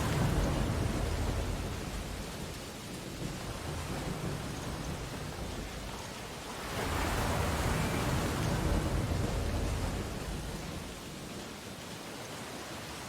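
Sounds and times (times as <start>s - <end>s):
surf hiss: 0.0s - 11.8s
ocean wave breaking: 6.5s - 10.9s.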